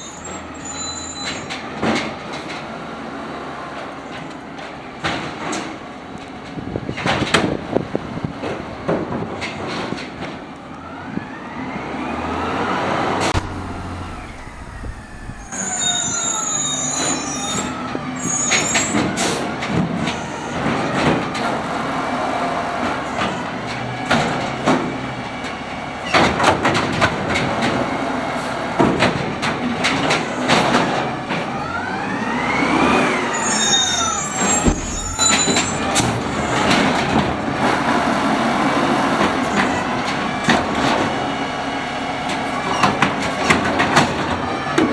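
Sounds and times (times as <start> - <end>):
hydraulic arm whine: 10.8 - 24.9, 30.2 - 41.2
garbage truck engine idling: 13.2 - 32.5, 33.1 - 44.9
cart knocks and bangs: 13.3 - 17.7, 33.8 - 38.0
high squeaks: 13.4 - 19.1, 33.3 - 36.6.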